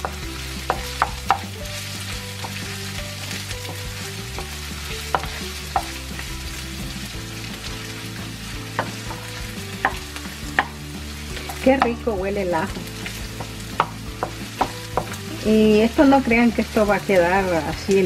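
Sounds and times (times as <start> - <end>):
spoon tapping pan: 0.0 - 6.2, 8.7 - 17.4
garlic sizzling in oil: 0.0 - 18.0
wooden spoon stirring: 0.0 - 18.0.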